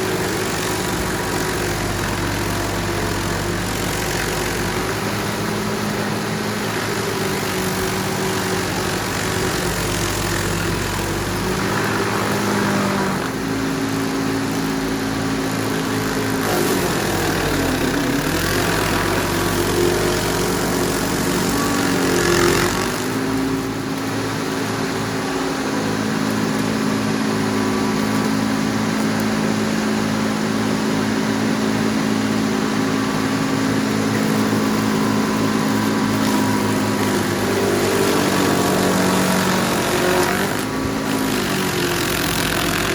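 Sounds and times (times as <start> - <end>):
stump grinder grinding: 0.0 - 42.9.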